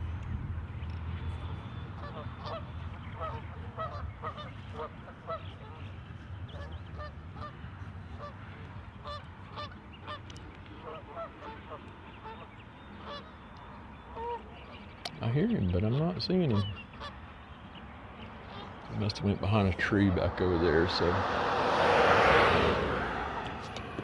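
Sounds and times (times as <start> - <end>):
geese honking: 1.9 - 5.9, 6.5 - 8.4, 9.0 - 21.3.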